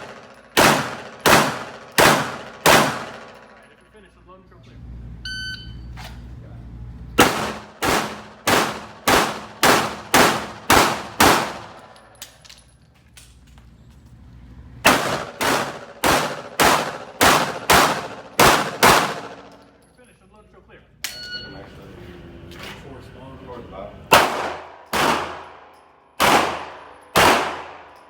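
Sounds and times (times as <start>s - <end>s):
pistol firing rapid shots: 0.0s - 3.4s, 7.2s - 11.8s, 14.8s - 19.6s, 24.1s - 25.6s, 26.2s - 28.0s
shot timer beep: 5.3s - 5.9s, 21.1s - 21.6s.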